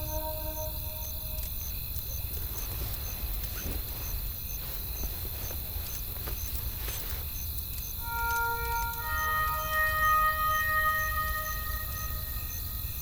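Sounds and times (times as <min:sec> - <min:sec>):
soft music phrase: 0:00.0 - 0:01.5, 0:08.0 - 0:13.0
low rumble of wind: 0:00.0 - 0:08.8.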